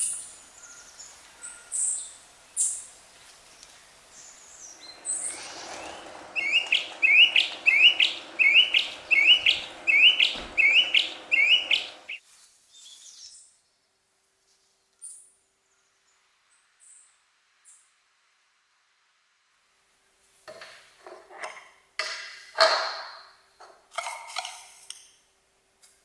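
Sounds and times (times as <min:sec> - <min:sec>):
faint distant bird chirps: 0:04.1 - 0:13.4
songbird singing rising notes: 0:04.2 - 0:12.2.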